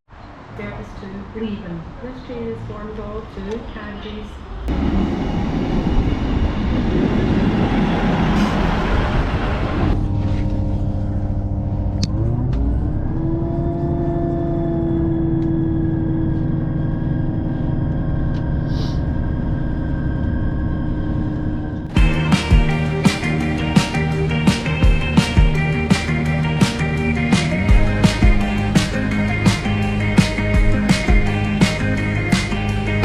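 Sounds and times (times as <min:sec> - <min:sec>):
train engine hum: 0:00.2 - 0:12.1, 0:13.0 - 0:33.0
train rushing rumble: 0:00.4 - 0:10.8
music: 0:21.9 - 0:33.0.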